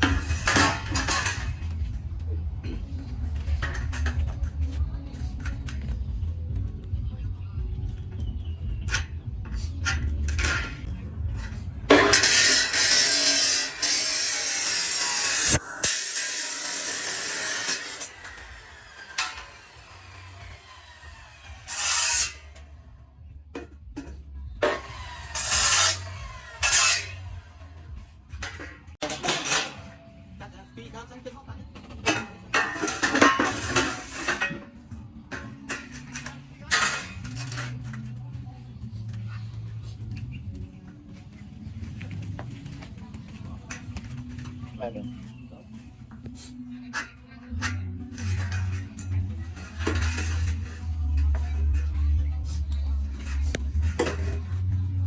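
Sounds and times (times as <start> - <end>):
low hum or murmur of voices: 0.0 - 11.9, 29.8 - 55.0.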